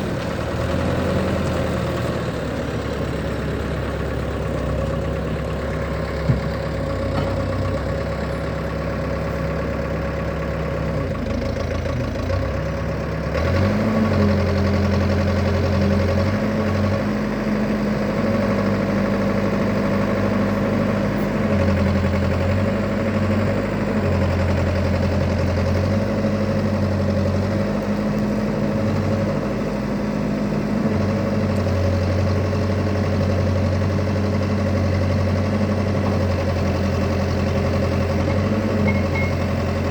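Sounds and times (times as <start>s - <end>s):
diesel engine running: 0.0s - 39.9s
deeper engine note: 35.3s - 39.9s.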